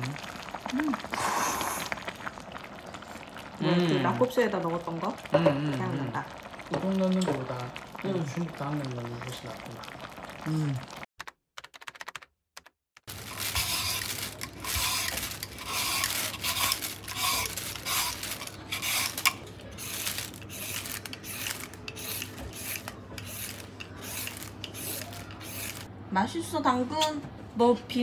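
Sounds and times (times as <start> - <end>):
carrot crunching: 13.1 - 23.0.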